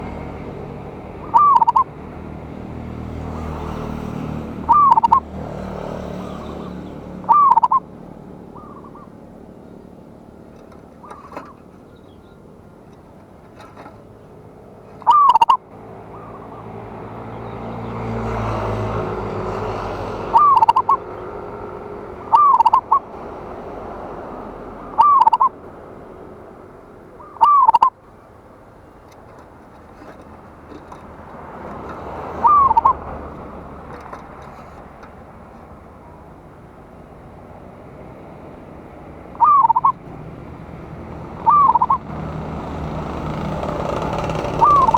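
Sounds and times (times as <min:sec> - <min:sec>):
dove cooing: 0:00.8 - 0:09.8, 0:10.4 - 0:12.4, 0:14.9 - 0:25.6, 0:27.1 - 0:28.0, 0:31.6 - 0:34.1, 0:39.3 - 0:44.9.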